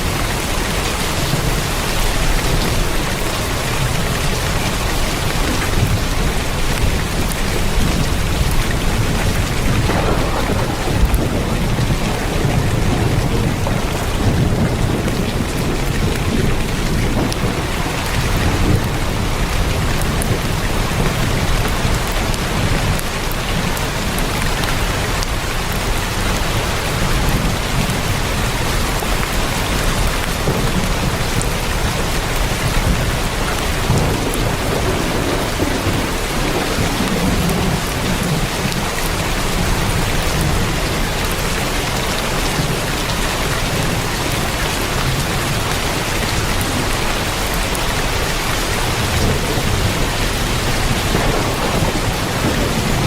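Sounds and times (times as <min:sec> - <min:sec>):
heavy rain on a tin roof: 0:00.0 - 0:53.0
low rumble: 0:09.0 - 0:16.6.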